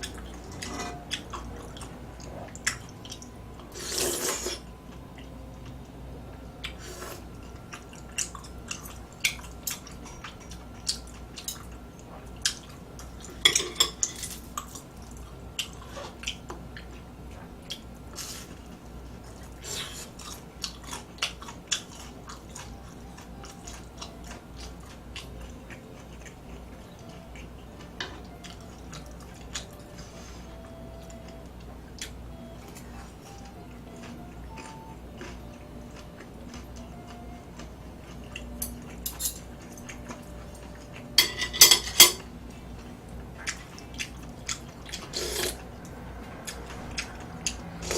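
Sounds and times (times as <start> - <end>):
chewing: 6.6 - 13.4, 14.5 - 41.2, 42.5 - 47.9
utensils tapping against a dish: 41.2 - 42.3.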